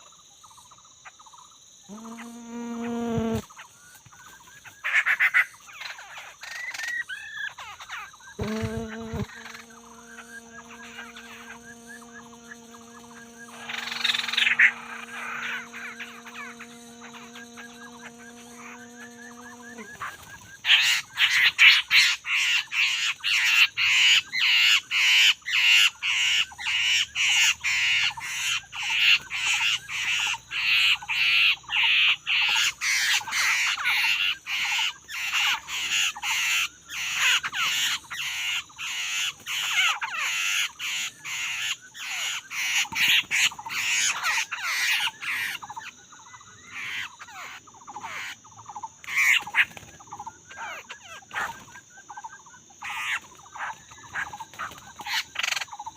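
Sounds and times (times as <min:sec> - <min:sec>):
laughingthrush harsh chattering calls: 0:12.9 - 0:18.8.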